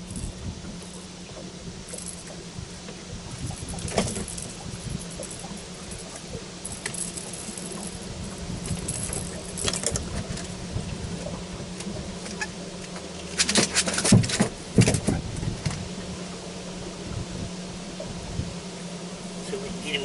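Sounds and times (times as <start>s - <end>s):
gear clicking and rattling: 0.0s - 10.6s
steady low hum: 0.0s - 20.0s.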